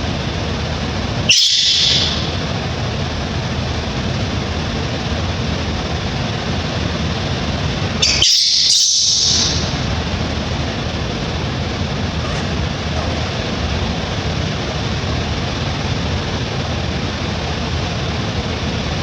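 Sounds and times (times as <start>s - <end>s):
baby monkey squealing: 1.3s - 2.4s, 8.0s - 9.9s.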